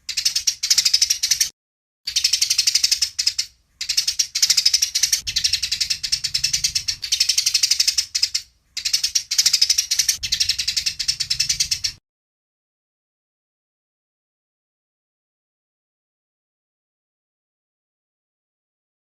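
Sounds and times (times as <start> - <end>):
sparrows chirping: 0.0 - 1.5, 2.1 - 12.0.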